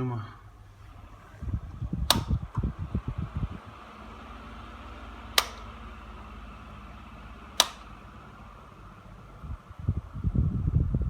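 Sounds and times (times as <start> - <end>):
electric fan humming: 0.0 - 11.0
fan switch click: 2.0 - 2.8, 5.3 - 6.0, 7.5 - 8.1.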